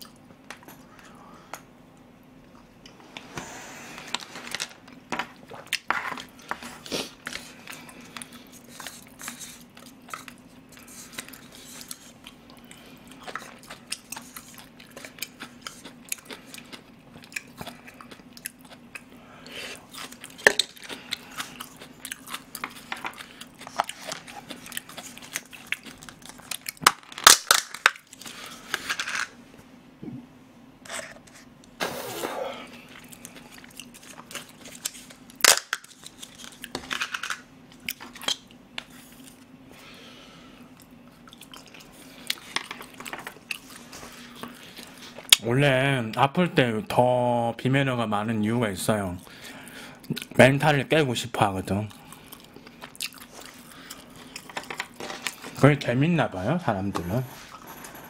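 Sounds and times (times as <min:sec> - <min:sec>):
steady low hum: 0:00.0 - 0:58.0
person chewing and biting food: 0:05.4 - 0:28.6, 0:40.7 - 0:45.4, 0:51.9 - 0:55.4.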